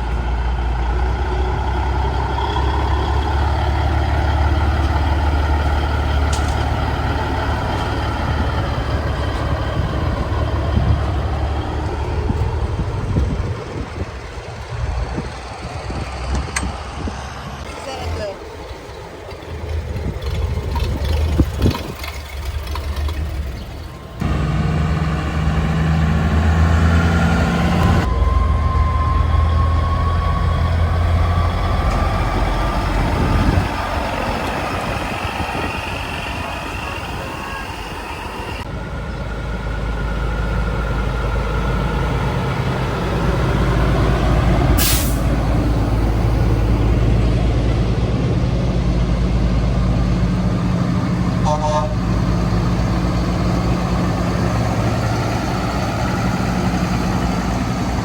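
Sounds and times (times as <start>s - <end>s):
truck engines running: 0.0s - 58.0s
engine whine rising in pitch: 19.6s - 50.2s
air-brake hiss: 44.8s - 45.3s.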